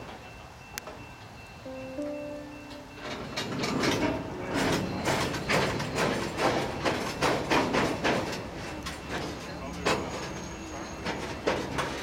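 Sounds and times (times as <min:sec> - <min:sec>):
train wheels clicking over rail joints: 0:00.0 - 0:12.0
short steady tone: 0:01.4 - 0:03.8.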